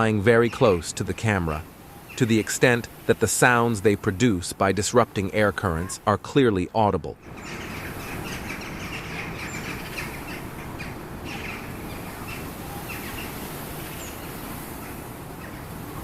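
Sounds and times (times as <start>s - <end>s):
bird chirps and calls: 1.7s - 3.0s, 7.2s - 16.0s.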